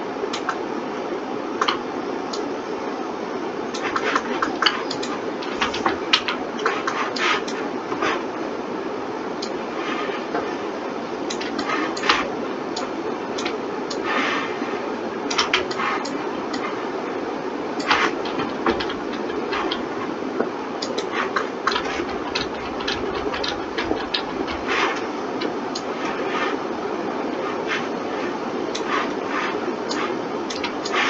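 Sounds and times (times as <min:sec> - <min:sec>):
steady hum: 0:00.0 - 0:31.0
mouse and keyboard clicks: 0:03.7 - 0:08.2, 0:17.8 - 0:20.1, 0:20.8 - 0:26.6, 0:28.8 - 0:31.0.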